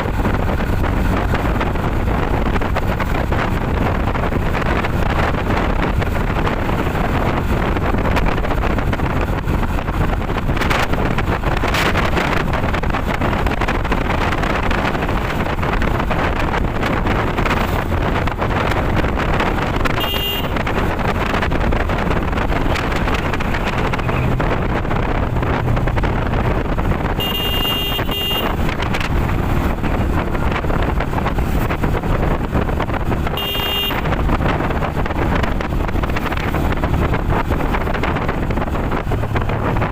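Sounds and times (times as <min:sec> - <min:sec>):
wind rushing over microphone: 0:00.0 - 0:39.9
short high-pitched horn beeps: 0:20.0 - 0:20.6, 0:27.2 - 0:28.5, 0:33.4 - 0:34.1.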